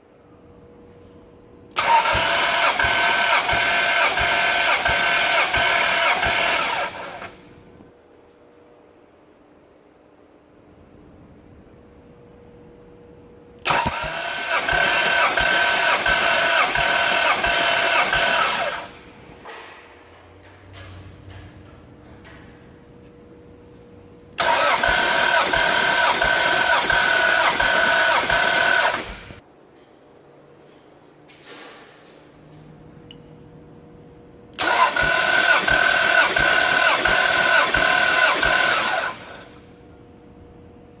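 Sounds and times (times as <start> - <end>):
starter motor cranking engine: 1.8 - 7.4, 13.7 - 19.1, 24.4 - 29.4, 34.6 - 39.5.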